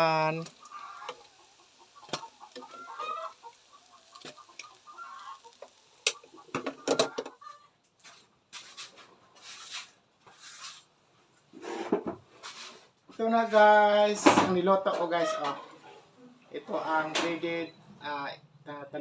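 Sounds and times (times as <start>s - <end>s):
chickens clucking: 0.0s - 7.9s, 14.3s - 17.5s.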